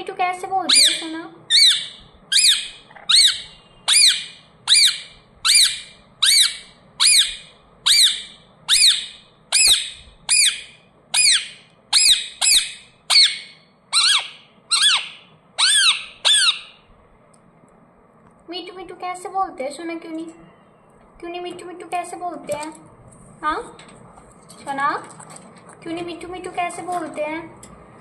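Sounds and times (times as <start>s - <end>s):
parrot squawking: 0.6s - 16.9s.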